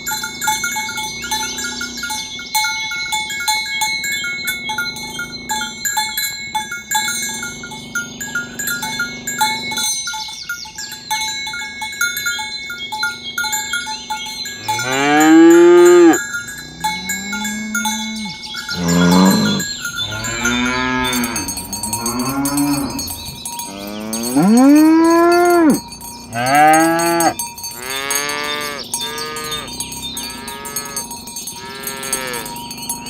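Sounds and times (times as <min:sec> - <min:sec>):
cattle bells clinking: 0:00.0 - 0:33.0
cow mooing: 0:07.3 - 0:09.8, 0:14.6 - 0:32.6.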